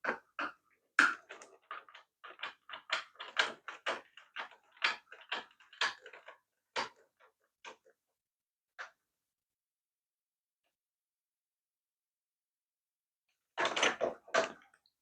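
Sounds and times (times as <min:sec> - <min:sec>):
plastic toy car parts clicking: 0:01.0 - 0:07.0.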